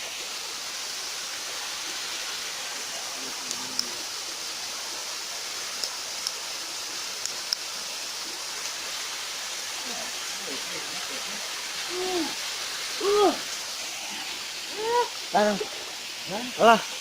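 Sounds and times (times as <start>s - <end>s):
river water rushing: 0.0s - 17.0s
faint sharp clicks: 3.4s - 4.0s.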